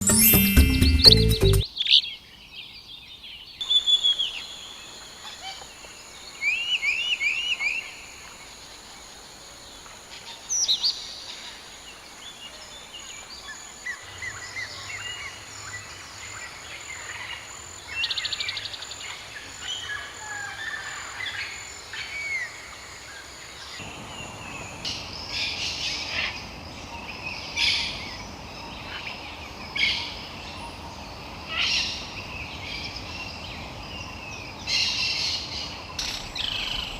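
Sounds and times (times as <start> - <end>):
steady outdoor hiss: 0.0 - 36.9
birds chirping and calling: 34.8 - 36.9.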